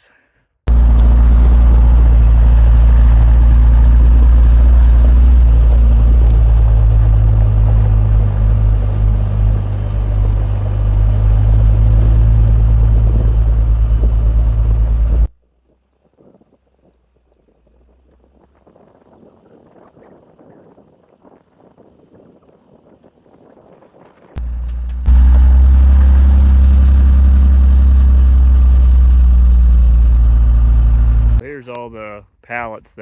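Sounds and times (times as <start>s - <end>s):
heavy vehicle engine droning: 0.7s - 15.3s, 24.4s - 31.4s.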